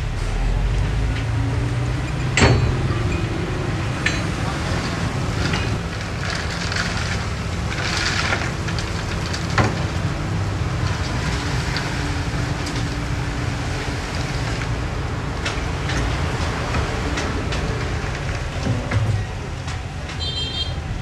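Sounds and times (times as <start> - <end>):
diesel engine running: 0.0 - 21.0
soil and stones crackling: 3.8 - 19.0.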